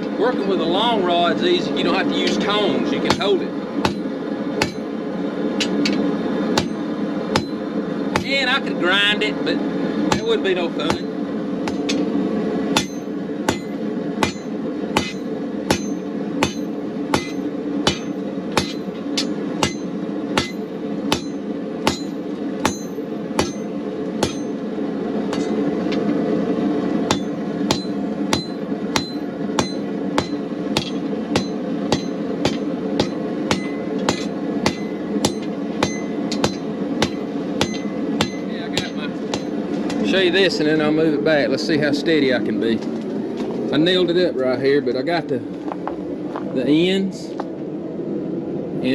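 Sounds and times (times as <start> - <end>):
gas forge roaring: 0.0 - 48.9
hammer striking metal on anvil: 2.3 - 4.9, 5.6 - 6.0, 6.6 - 7.6, 8.2 - 8.4, 10.1 - 12.1, 12.8 - 24.6, 25.3 - 26.0, 27.1 - 40.1.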